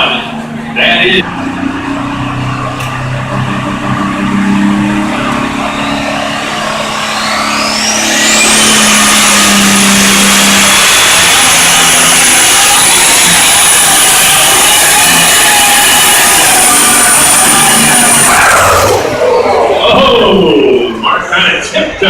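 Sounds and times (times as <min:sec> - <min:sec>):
tractor engine under hard throttle: 0:00.0 - 0:21.9
high engine whine: 0:00.0 - 0:22.0.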